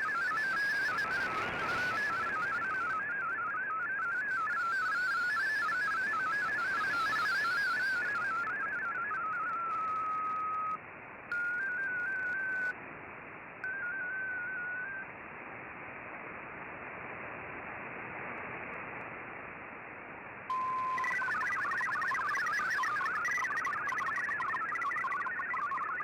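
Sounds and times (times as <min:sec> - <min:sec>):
radio static hiss: 0:00.0 - 0:12.7, 0:20.5 - 0:26.0
stepping digital data tones: 0:00.0 - 0:12.7, 0:20.5 - 0:26.0
steady tone: 0:20.5 - 0:26.0.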